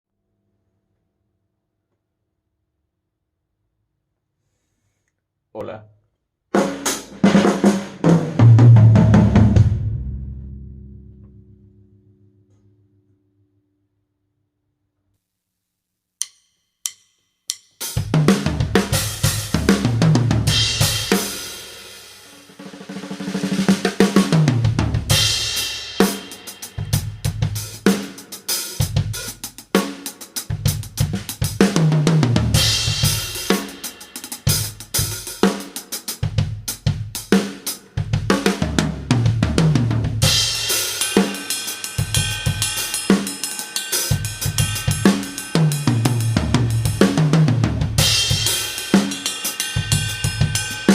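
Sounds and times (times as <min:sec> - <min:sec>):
acoustic drum kit groove: 0:06.5 - 0:10.3, 0:16.2 - 0:50.9
cymbal crash ringing: 0:40.3 - 0:47.2, 0:48.0 - 0:50.9.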